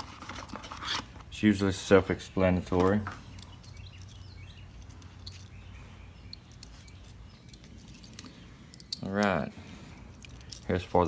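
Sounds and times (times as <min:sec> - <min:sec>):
faint birdsong chirps: 0:01.2 - 0:11.0.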